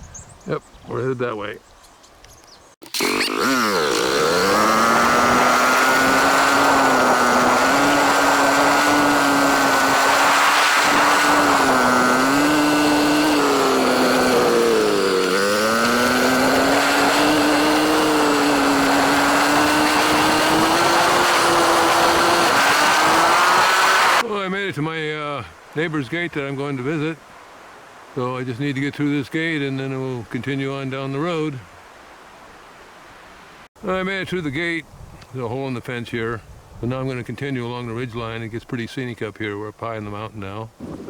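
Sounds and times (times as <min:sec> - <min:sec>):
dirt bike engine revving: 0:02.8 - 0:24.2.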